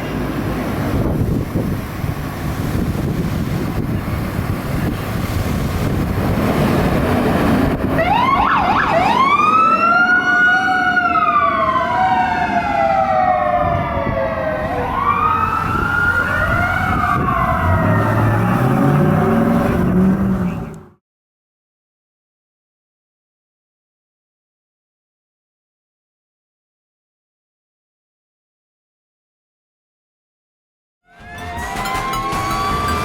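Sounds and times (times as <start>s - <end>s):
road and wind rumble: 0.0s - 21.0s
fire engine sirens wailing: 5.8s - 20.9s, 31.1s - 33.0s.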